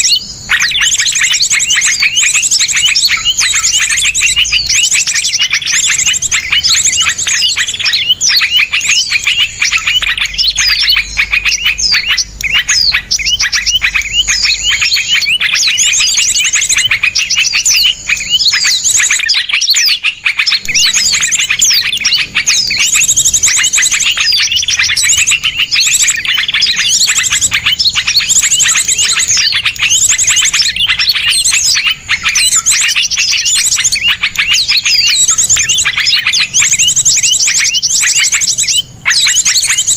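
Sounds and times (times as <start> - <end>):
small songbirds chirping and trilling: 0.0 - 39.9.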